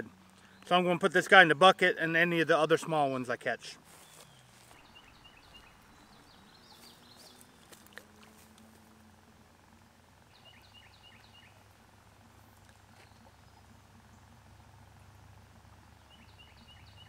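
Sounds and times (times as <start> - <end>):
songbird singing high chirps: 4.0 - 8.5, 9.7 - 11.8, 15.8 - 17.0.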